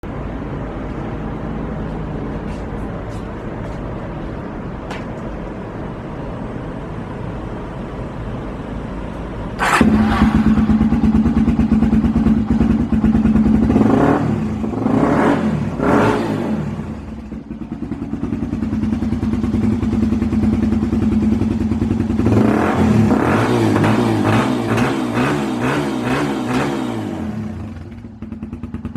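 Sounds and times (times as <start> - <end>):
motorcycle engine idling and revving: 7.0 - 28.9.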